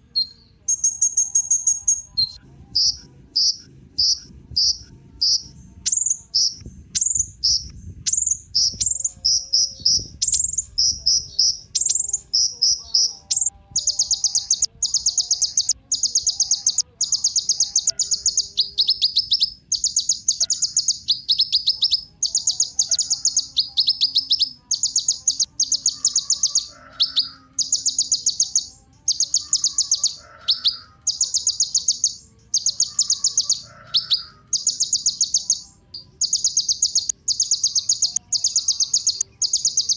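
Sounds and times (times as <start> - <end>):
bird singing high trilled chirps: 0.0 - 39.9.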